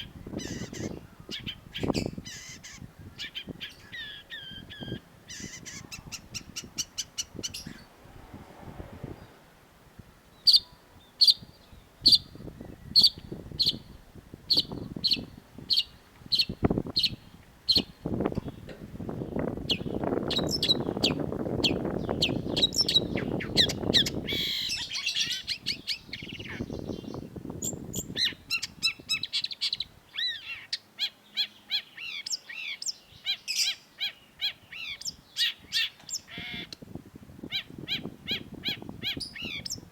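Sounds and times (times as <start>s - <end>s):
low rushing noise: 7.1s - 11.0s.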